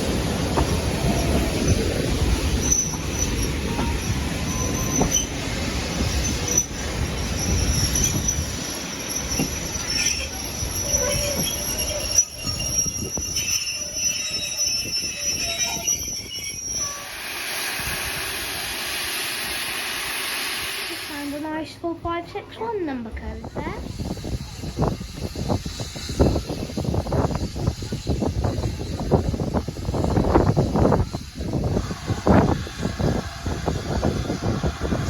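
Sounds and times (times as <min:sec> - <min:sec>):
train wheels squealing: 0:00.6 - 0:21.4, 0:23.6 - 0:35.0
wheels rumbling on track: 0:23.6 - 0:35.0.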